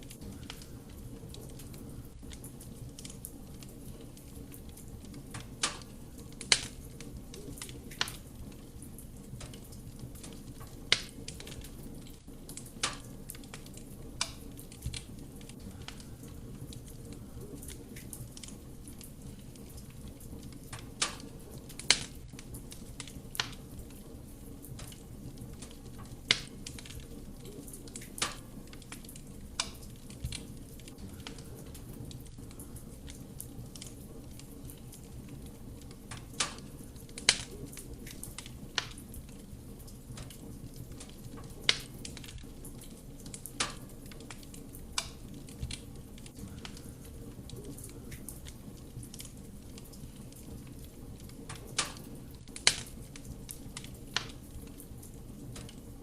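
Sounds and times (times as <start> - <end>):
fire rumbling: 0.0 - 56.0
wood crackling and popping: 0.0 - 56.0.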